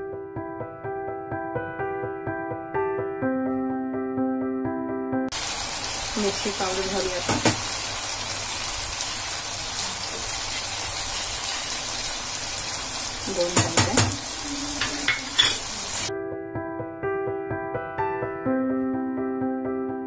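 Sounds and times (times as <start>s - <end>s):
piano music: 0.0s - 7.6s, 10.4s - 20.0s
masala sizzling in hot oil: 5.3s - 16.1s.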